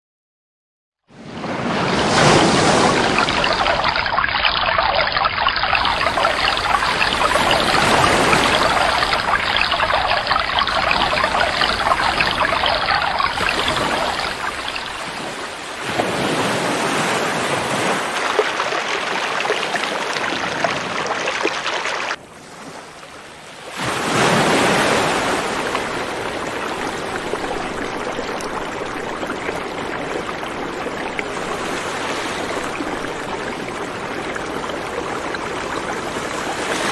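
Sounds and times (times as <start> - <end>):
river water flowing over rocks: 2.2 - 16.4, 17.4 - 22.2.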